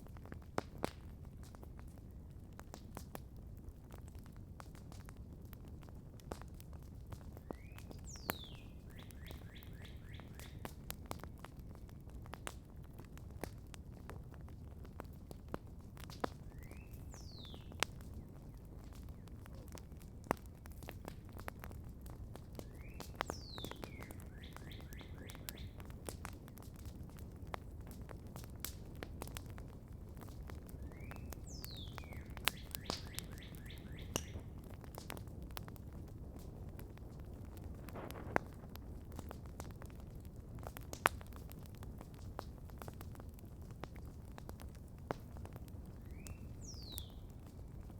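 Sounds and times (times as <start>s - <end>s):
campfire crackling and popping: 0.0s - 47.9s
songbird singing: 7.4s - 10.7s, 16.4s - 19.8s, 22.6s - 25.9s, 30.7s - 34.6s, 45.9s - 47.4s.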